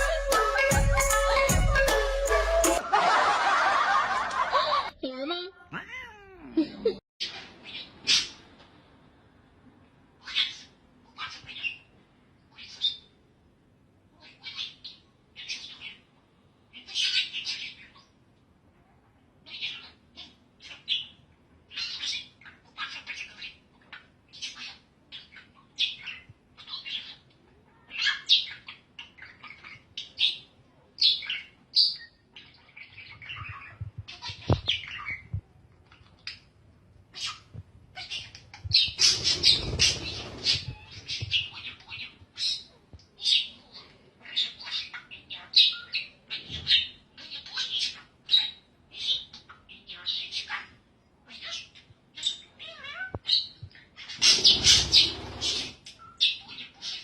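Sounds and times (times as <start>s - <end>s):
high-pitched animal calls: 5.7s - 6.7s.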